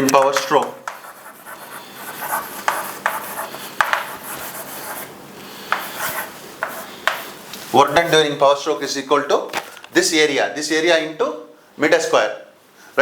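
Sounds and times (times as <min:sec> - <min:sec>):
pen taps: 0:00.0 - 0:01.2, 0:02.6 - 0:04.2, 0:05.7 - 0:05.9, 0:06.6 - 0:07.3
handwriting scratching strokes: 0:00.9 - 0:07.4.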